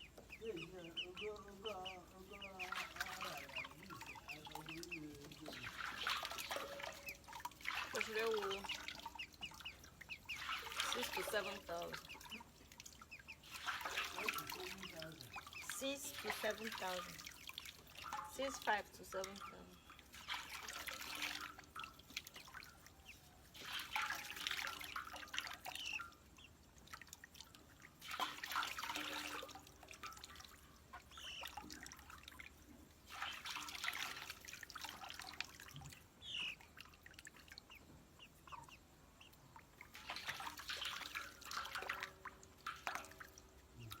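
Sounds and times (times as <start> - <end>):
poultry chirping: 0.0 - 17.5, 30.9 - 31.7, 36.0 - 36.8, 37.4 - 39.8
water splashing and dripping: 0.0 - 44.0.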